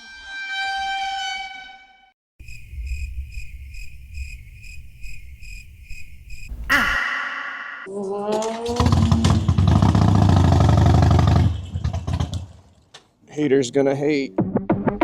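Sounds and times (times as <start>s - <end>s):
crickets chirping: 2.4s - 7.9s
steady horn-like tone: 6.5s - 7.9s.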